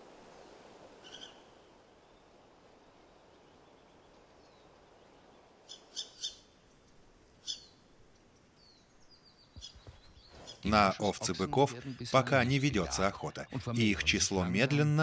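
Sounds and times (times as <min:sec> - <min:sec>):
bird calling short high calls: 0:01.0 - 0:01.5.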